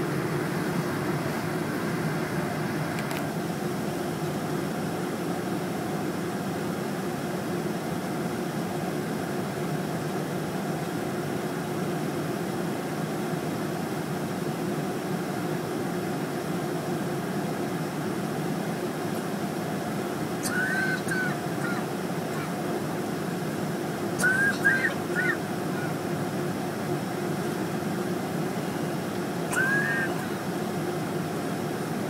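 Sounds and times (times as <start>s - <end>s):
jet engine noise: 0.0s - 32.0s
short bird calls: 20.4s - 22.6s, 24.2s - 26.0s, 29.5s - 30.4s.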